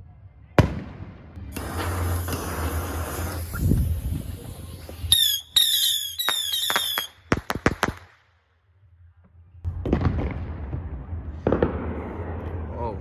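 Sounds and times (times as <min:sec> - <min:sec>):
firework cracks: 0:01.4 - 0:08.3
firework whistles falling in pitch: 0:01.5 - 0:07.2.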